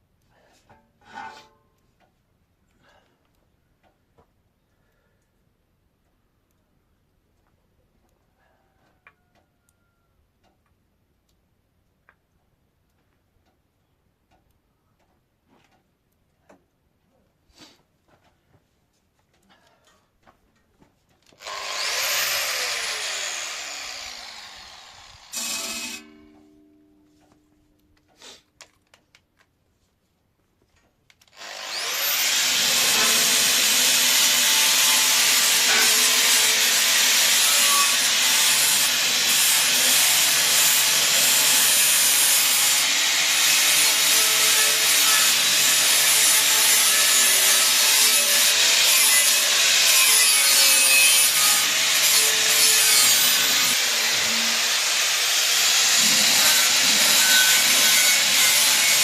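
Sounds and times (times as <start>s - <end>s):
angle grinder cutting steel: 21.4s - 26.5s, 31.3s - 59.0s.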